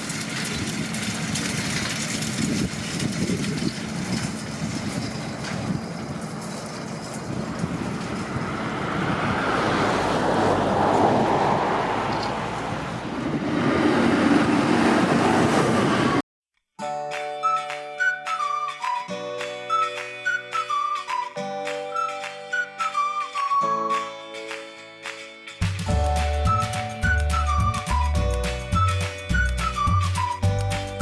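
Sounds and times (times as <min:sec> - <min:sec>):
tractor engine running: 0:00.0 - 0:16.2, 0:25.6 - 0:31.0.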